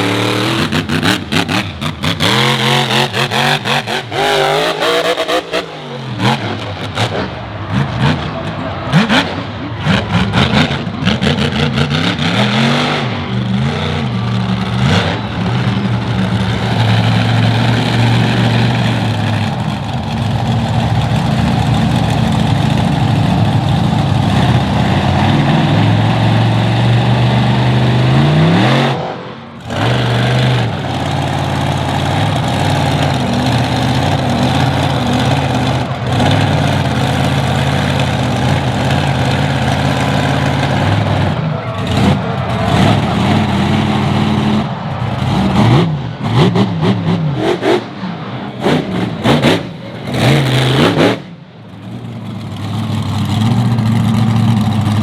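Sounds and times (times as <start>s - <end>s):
monster truck engine revving: 0.0s - 55.0s.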